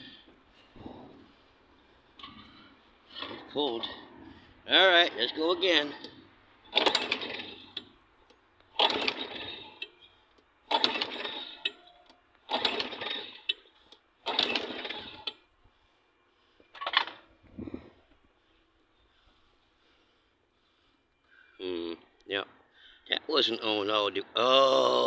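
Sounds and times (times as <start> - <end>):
small engine cranking: 2.2 - 4.0, 4.8 - 15.5.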